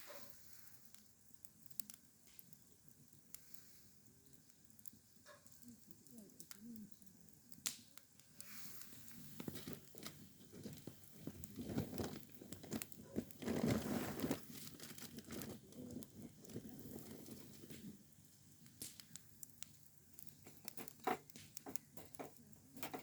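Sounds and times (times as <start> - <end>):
packaging rustling and crackling: 8.4 - 18.0.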